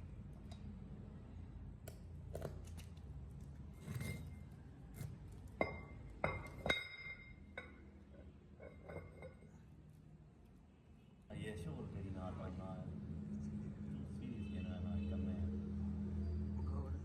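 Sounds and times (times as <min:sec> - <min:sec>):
metal clinks and taps: 0:05.5 - 0:09.6.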